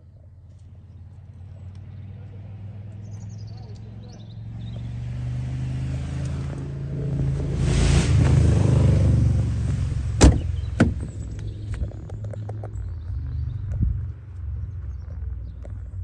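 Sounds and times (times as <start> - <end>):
car engine idling: 0.0 - 16.0
rushing noise: 7.0 - 10.8.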